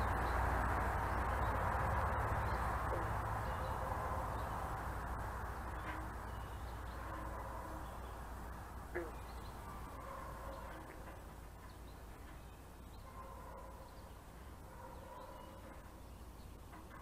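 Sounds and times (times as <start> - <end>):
low rumble and hiss: 0.0 - 17.0
faint bird calls: 8.8 - 17.0.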